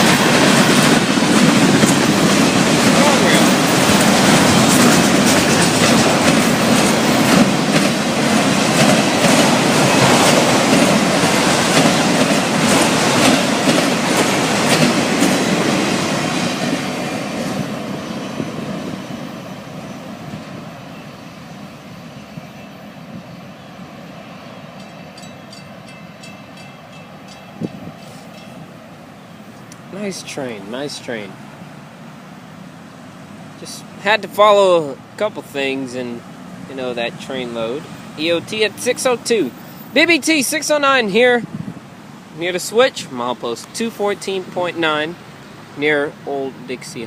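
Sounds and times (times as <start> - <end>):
train wheels clicking over rail joints: 0.0 - 19.1.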